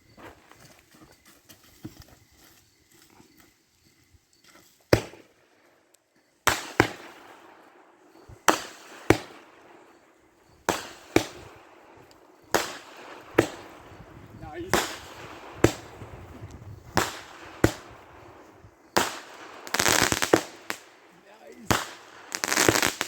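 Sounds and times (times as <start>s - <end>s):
fireworks bangs: 6.4s - 7.6s, 8.2s - 9.9s, 10.6s - 11.9s, 12.5s - 23.0s
fireworks trailing hiss: 12.5s - 23.0s.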